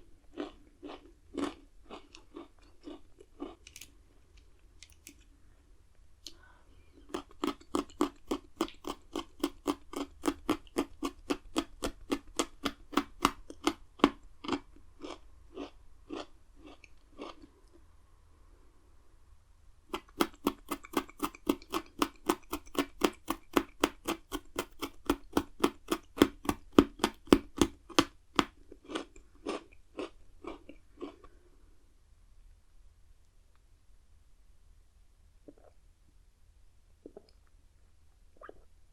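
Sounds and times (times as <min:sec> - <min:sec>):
biscuit sticks crunched and chewed: 0:00.3 - 0:05.3, 0:07.1 - 0:17.5, 0:19.9 - 0:31.4.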